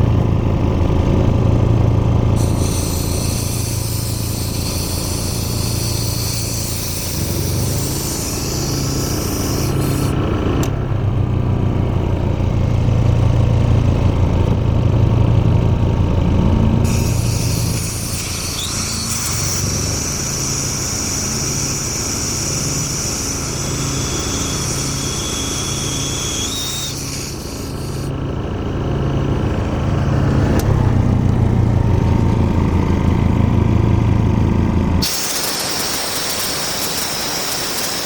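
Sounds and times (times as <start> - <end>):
air compressor engine pulsing: 0.0 - 11.2, 16.2 - 38.0
steady high hiss: 17.0 - 28.1.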